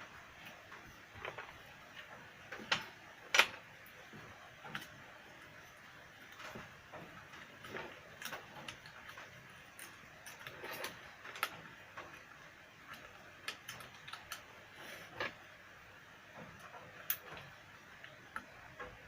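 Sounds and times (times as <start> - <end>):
light clicks of small parts: 16.6 - 18.9.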